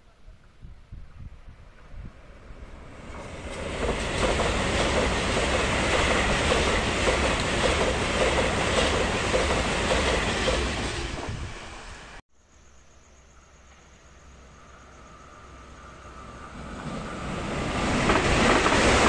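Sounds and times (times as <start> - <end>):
train wheels rushing and clattering: 3.0 - 11.5, 16.6 - 19.0.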